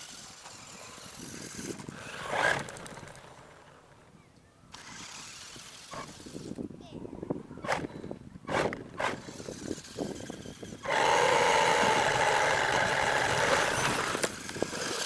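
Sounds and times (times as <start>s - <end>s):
toy truck motor whining: 0.0s - 3.3s, 4.7s - 6.6s, 8.5s - 15.0s.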